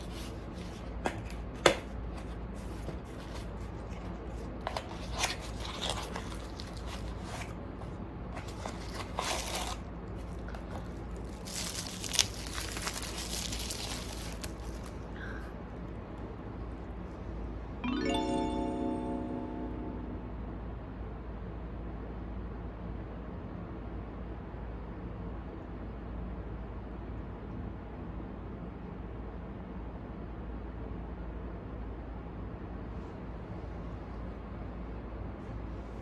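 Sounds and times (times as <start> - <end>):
rustling and crinkling: 0.0 - 15.2
low hum: 17.8 - 21.0.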